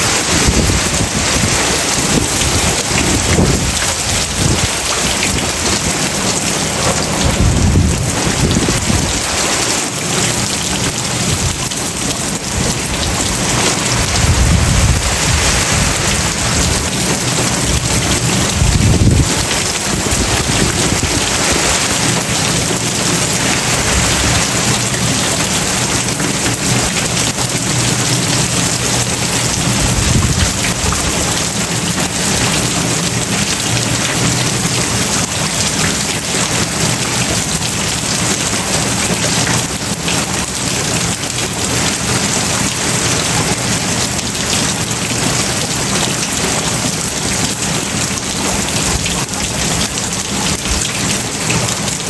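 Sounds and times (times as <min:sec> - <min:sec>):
heavy rain pouring: 0:00.0 - 0:52.0
low rumble: 0:06.9 - 0:09.3, 0:12.5 - 0:21.8.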